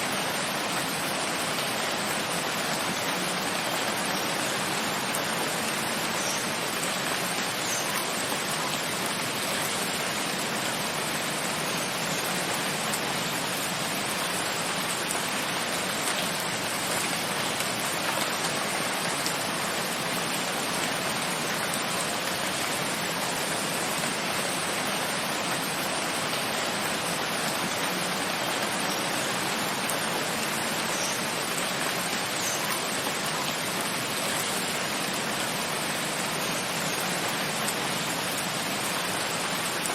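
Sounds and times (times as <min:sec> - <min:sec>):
faint raindrops: 0:00.0 - 0:39.9
steady rain hiss: 0:00.0 - 0:39.9.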